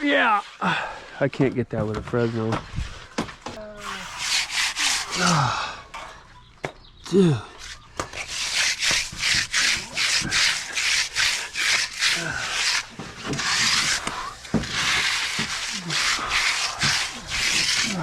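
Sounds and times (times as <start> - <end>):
hand float scraping wet concrete: 3.6 - 6.3, 7.6 - 18.0.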